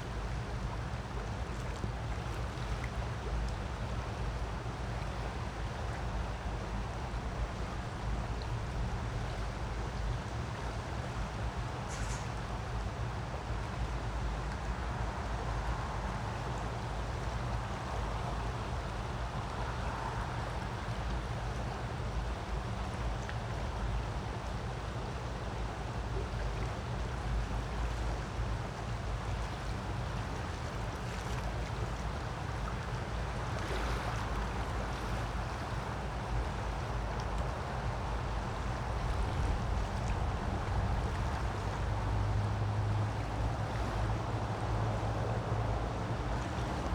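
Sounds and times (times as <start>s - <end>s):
creek water flowing: 14.6s - 46.9s.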